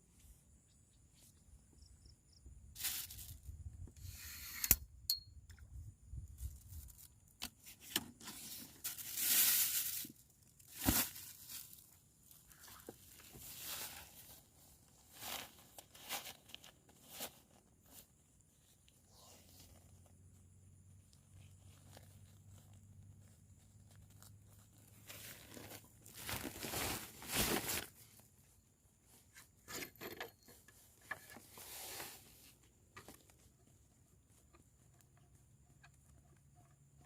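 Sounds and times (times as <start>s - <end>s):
rustling and crinkling: 2.8s - 3.9s, 6.2s - 37.0s.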